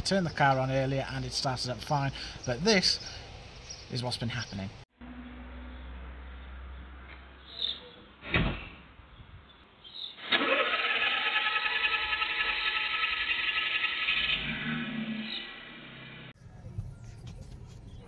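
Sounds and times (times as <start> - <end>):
engine cranking on starter: 10.2 - 16.2.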